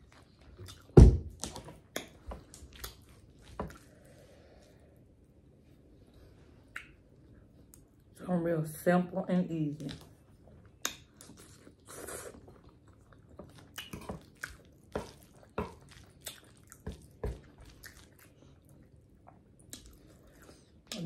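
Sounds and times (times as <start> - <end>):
chewing and lip smacking: 0.0 - 1.0, 1.8 - 3.9, 10.0 - 21.0.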